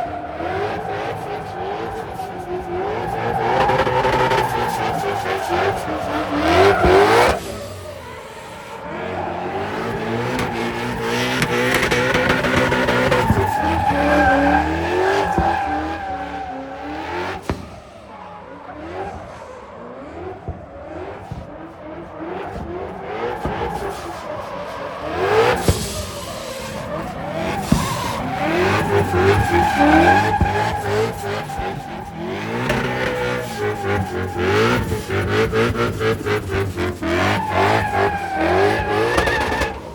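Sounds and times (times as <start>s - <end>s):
engines revving at high rpm: 0.0s - 39.9s
tyres squealing: 23.1s - 39.9s.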